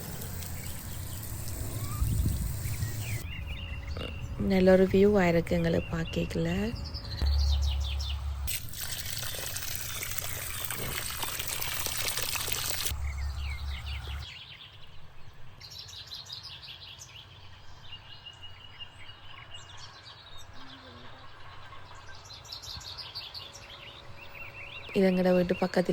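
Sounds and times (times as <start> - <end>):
water spraying: 0.0 - 3.2, 8.5 - 13.0
songbirds chirping: 0.0 - 25.9.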